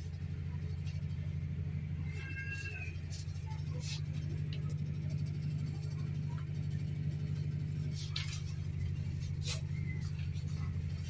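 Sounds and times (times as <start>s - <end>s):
train carriage rumble: 0.0s - 11.0s
light clicks and rattles: 2.2s - 11.0s.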